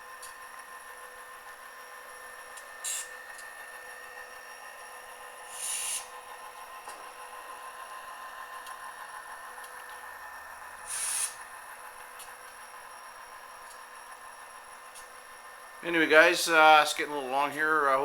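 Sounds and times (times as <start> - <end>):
short air hisses: 5.5 - 6.1, 10.9 - 11.4
thin diesel engine drone: 15.8 - 18.0.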